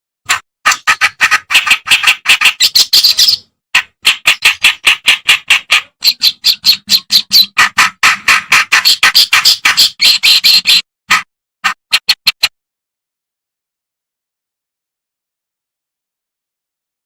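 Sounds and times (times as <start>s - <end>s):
reed warbler singing harsh notes: 1.8s - 3.5s.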